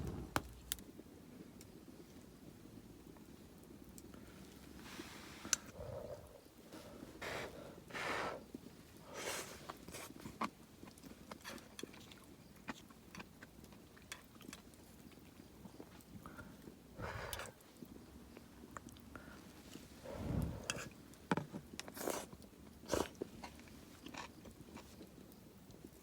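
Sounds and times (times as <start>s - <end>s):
person chewing with small crunches: 8.5s - 26.0s.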